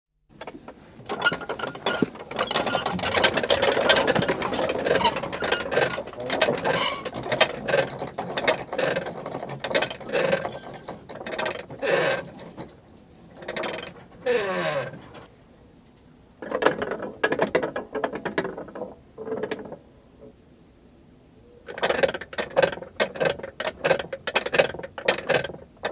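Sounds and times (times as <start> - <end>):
metal prayer wheel rattling: 0.4 - 12.7.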